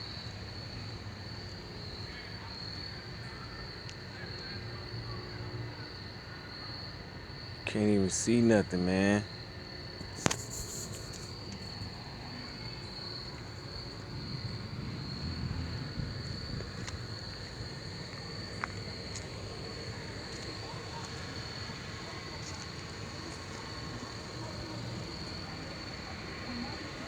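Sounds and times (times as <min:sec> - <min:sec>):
insects chirping: 0:00.0 - 0:27.0
faint clicks: 0:10.0 - 0:14.0
low even rumble: 0:11.3 - 0:21.6.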